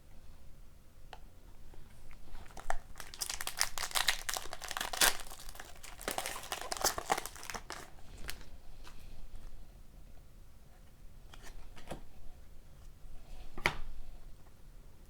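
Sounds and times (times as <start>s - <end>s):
plastic wrapper crinkling and tearing: 2.1s - 9.0s.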